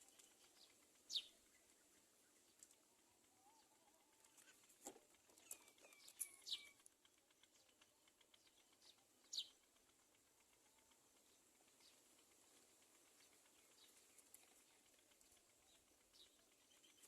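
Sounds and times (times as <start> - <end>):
bird chirps and calls: 0.0 - 2.8, 5.3 - 9.7, 13.1 - 17.0
small clicks: 2.4 - 17.0.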